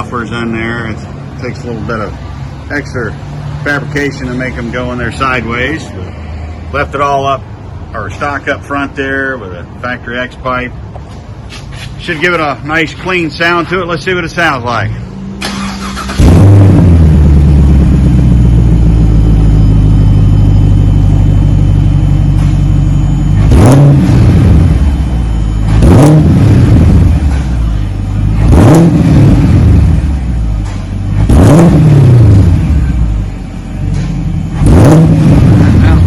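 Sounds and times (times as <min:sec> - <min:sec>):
car engine starting: 0:14.6 - 0:36.0
engine revving: 0:15.1 - 0:36.0
car engine idling: 0:15.4 - 0:36.0.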